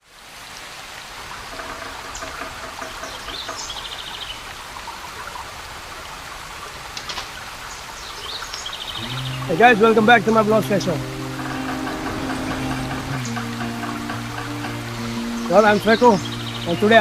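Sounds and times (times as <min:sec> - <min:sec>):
flowing water rushing: 0:00.0 - 0:17.0
birds calling: 0:08.7 - 0:17.0.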